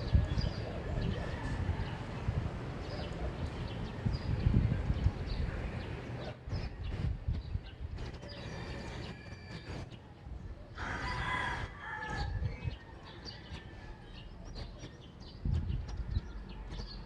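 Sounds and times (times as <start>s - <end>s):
rooster crowing: 1.2s - 2.1s, 10.8s - 14.2s.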